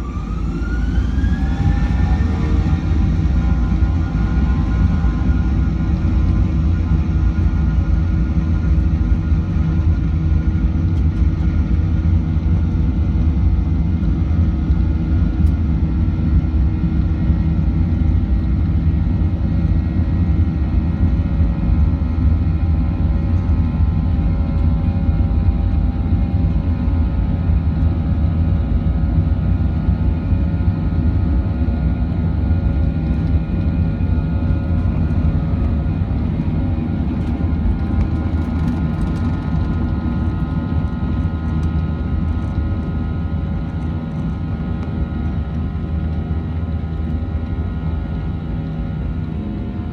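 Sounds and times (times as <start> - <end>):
jet engine cabin drone: 0.0 - 49.9.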